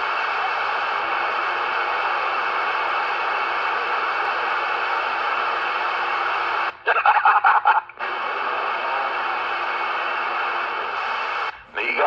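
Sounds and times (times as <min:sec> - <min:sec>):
radio static hiss: 0:00.0 - 0:12.0
choppy radio signal burst: 0:04.0 - 0:12.0.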